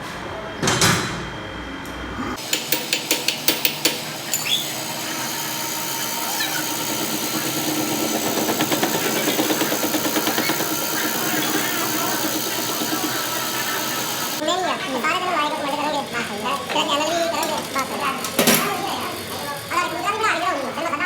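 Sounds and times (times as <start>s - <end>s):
power tool running with pulsing beat: 2.4s - 14.4s.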